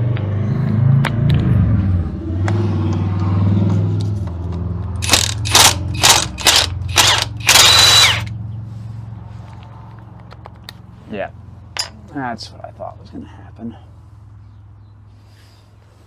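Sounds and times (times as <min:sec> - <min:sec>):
impact wrench bursts: 0:05.0 - 0:08.3.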